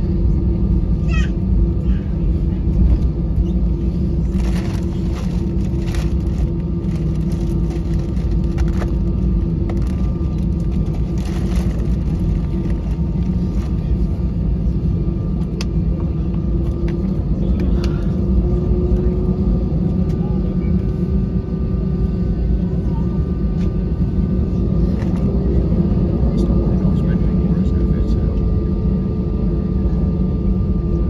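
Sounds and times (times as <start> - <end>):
aircraft cabin rumble: 0.0 - 31.0
mid-pitched hum: 0.0 - 31.0.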